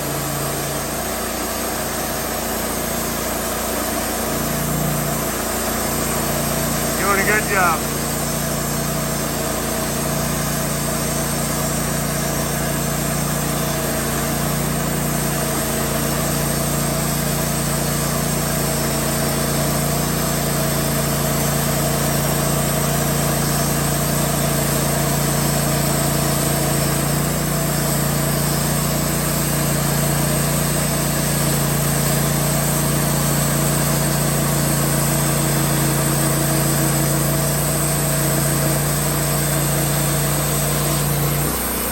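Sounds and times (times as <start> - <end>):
sawmill cutting log: 0.0 - 41.9.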